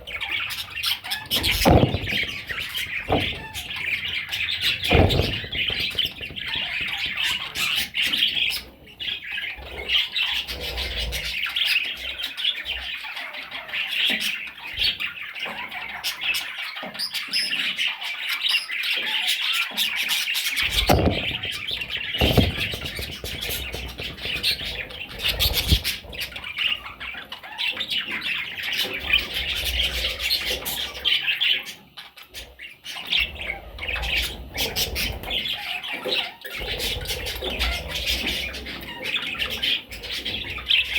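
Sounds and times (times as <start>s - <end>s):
parrot chicks squawking and chirping: 0.0s - 40.9s
low thumps: 1.4s - 8.2s, 20.6s - 26.4s.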